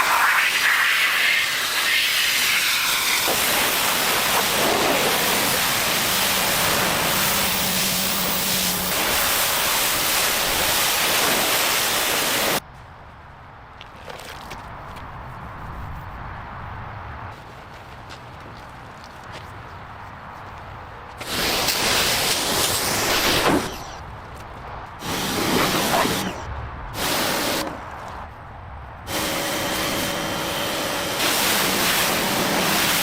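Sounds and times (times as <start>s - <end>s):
loud rushing spray hiss: 0.0s - 12.6s, 21.2s - 24.0s, 25.0s - 26.4s, 27.0s - 27.7s, 29.1s - 33.0s.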